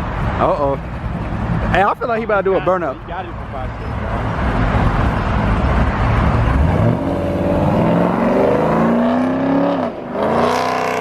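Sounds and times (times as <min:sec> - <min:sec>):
car engine revving: 0:01.0 - 0:11.0.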